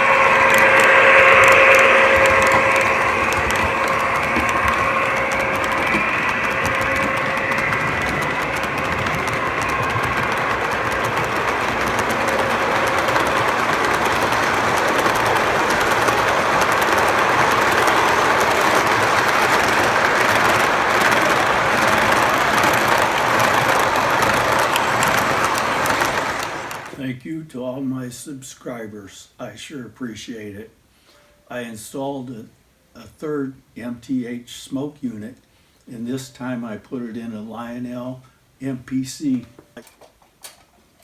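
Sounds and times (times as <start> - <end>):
toy train running on track: 0.0 - 27.1.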